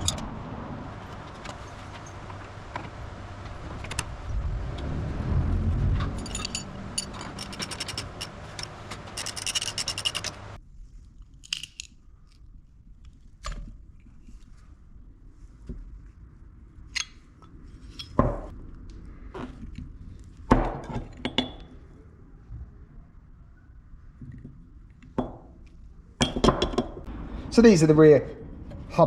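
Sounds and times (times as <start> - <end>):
metal tools clinking and scraping: 6.0 - 10.6, 17.8 - 18.2.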